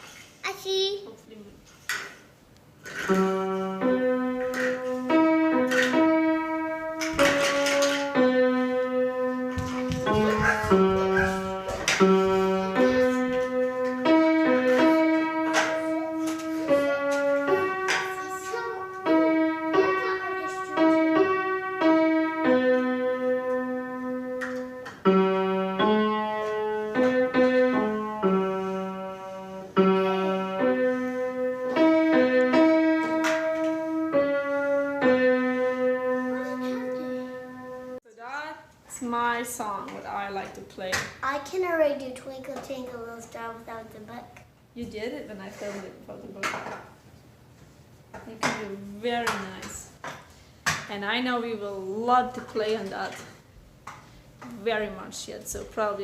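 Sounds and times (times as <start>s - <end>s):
slow simple piano tune: 2.9s - 38.0s.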